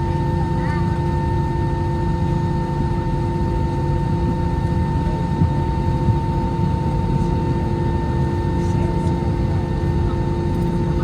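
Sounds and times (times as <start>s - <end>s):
jet engine idling: 0.0s - 11.0s.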